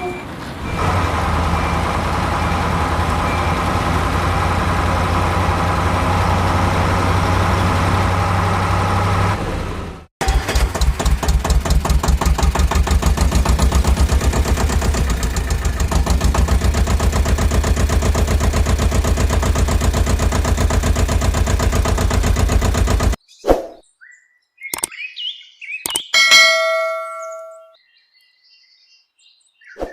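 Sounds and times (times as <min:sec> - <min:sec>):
truck engine idling with knocking: 0:00.0 - 0:23.2.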